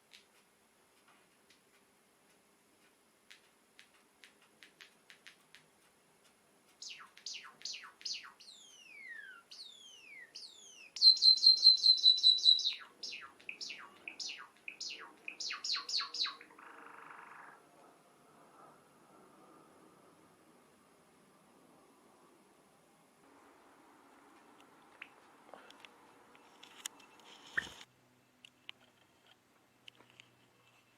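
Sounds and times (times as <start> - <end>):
sparrow singing: 6.8 - 17.5.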